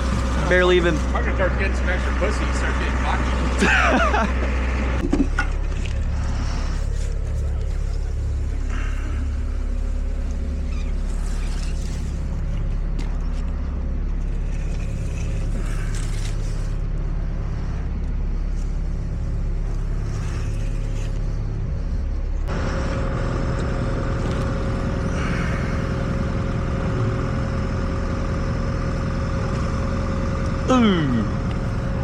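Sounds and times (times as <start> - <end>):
engine droning: 0.0 - 32.0.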